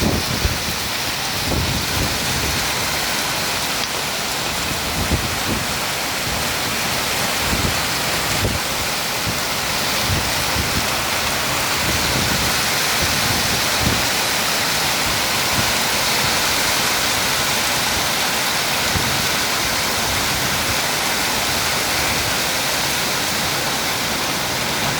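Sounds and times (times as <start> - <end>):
wind buffeting microphone: 0.0 - 14.3
heavy rain hiss: 0.0 - 24.9.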